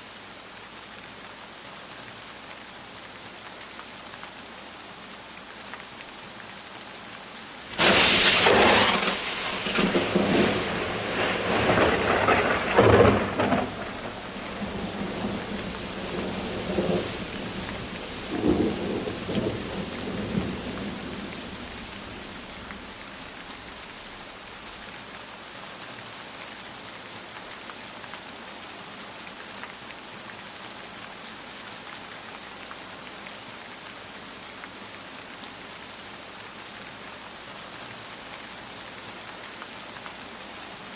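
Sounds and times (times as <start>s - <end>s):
steady rain: 0.0s - 40.9s
thunder crack and rumble: 7.7s - 23.8s.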